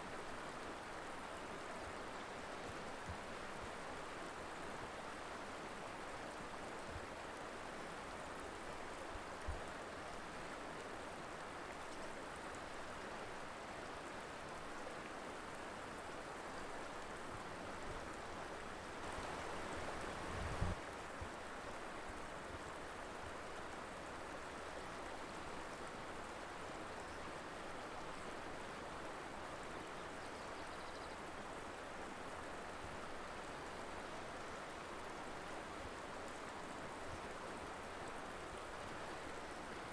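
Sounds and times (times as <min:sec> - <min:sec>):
river water rushing: 0:18.9 - 0:20.7.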